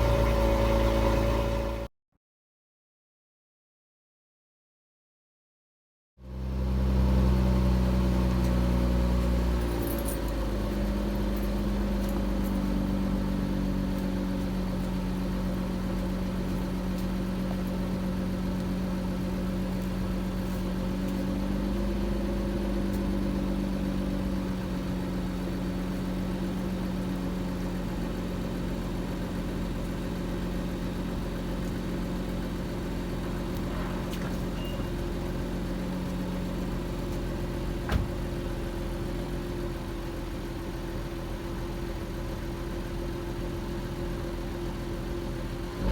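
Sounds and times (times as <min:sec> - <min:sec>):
car engine fast idle: 0:10.2 - 0:45.9.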